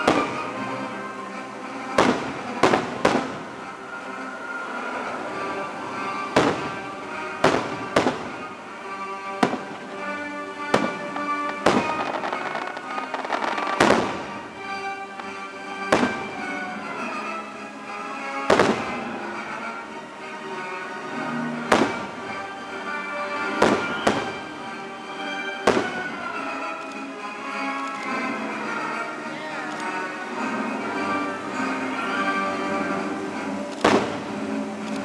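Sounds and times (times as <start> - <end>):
music soundtrack: 0.0 - 35.0
fireworks shells bursting: 5.4 - 17.4, 32.9 - 35.0.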